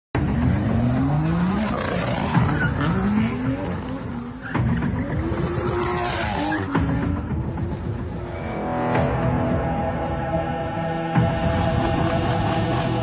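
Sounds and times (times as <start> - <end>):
car engine accelerating hard: 0.2 - 8.2.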